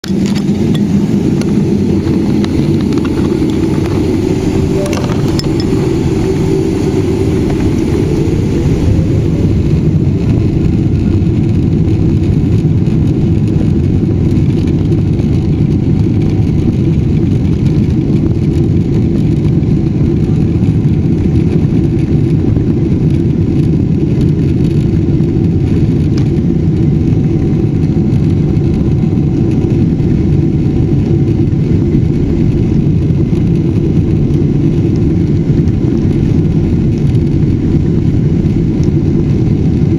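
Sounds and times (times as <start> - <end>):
jet engine whine: 0.0 - 39.9
jet engines low rumble: 0.0 - 39.9.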